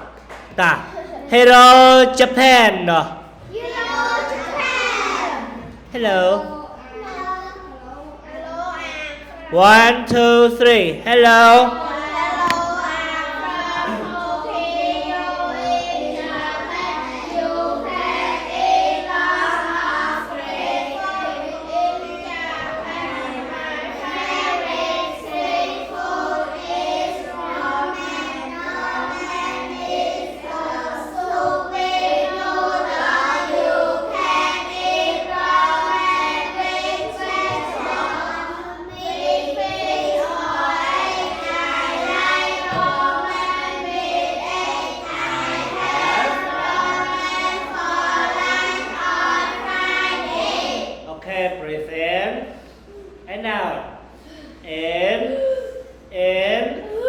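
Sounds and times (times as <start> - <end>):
children singing in unison: 11.4 - 51.1.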